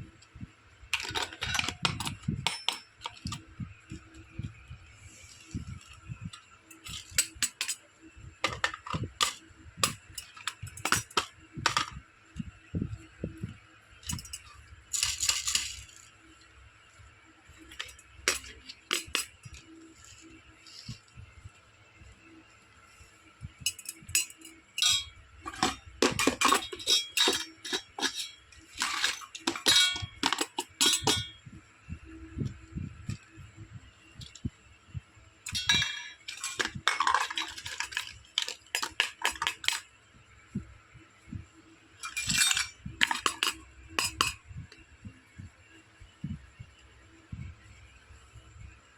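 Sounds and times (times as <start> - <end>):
toy kitchen pieces clicking: 1.0 - 3.4, 6.7 - 7.8, 17.8 - 19.3, 23.7 - 31.3, 35.5 - 39.8, 42.0 - 44.4.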